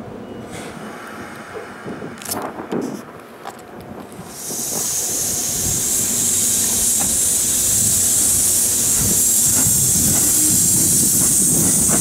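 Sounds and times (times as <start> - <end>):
train wheels rumbling: 0.0 - 12.0
train high hiss: 4.2 - 12.0.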